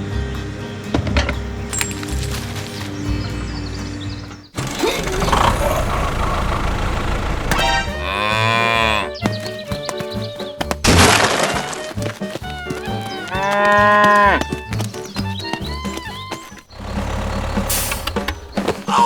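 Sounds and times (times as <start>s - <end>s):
background music: 0.0s - 19.0s
moo-like calls: 4.6s - 9.9s, 11.4s - 17.9s.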